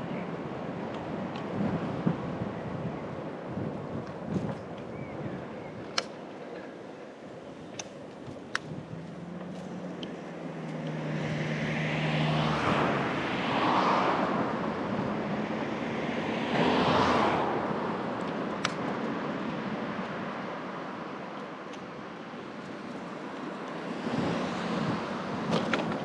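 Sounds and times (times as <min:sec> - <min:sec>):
vehicles passing: 0:00.0 - 0:26.0
low engine hum: 0:06.4 - 0:26.0.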